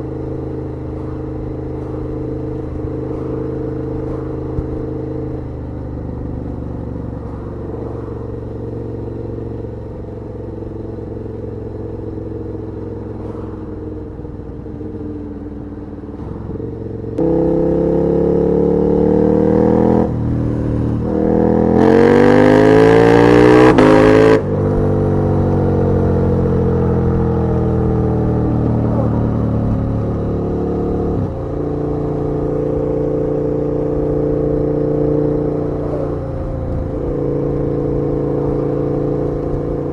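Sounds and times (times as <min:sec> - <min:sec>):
motorcycle engine revving: 0:00.0 - 0:39.9
rushing wind noise: 0:16.1 - 0:23.4.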